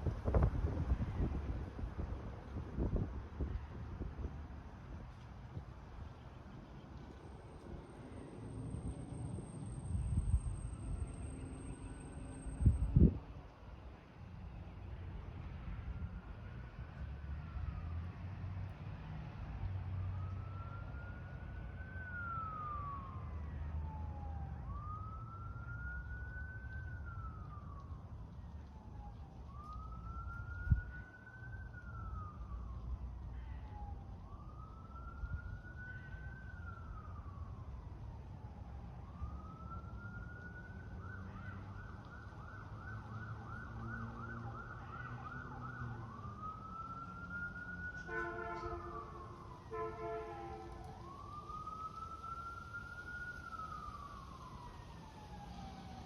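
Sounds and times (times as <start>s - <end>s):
low traffic rumble: 0.0s - 56.0s
emergency siren wailing: 7.0s - 13.3s, 15.3s - 56.0s
deep multi-tone horn blasts: 48.1s - 50.8s.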